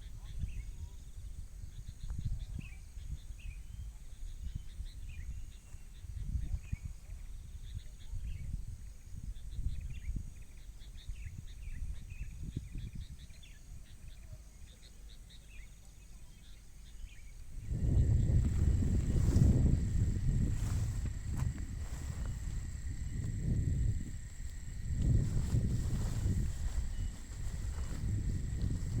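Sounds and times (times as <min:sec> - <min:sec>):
wind buffeting microphone: 0:00.0 - 0:14.3, 0:17.1 - 0:29.0
birds chirping: 0:00.0 - 0:29.0
high insect buzz: 0:14.8 - 0:29.0.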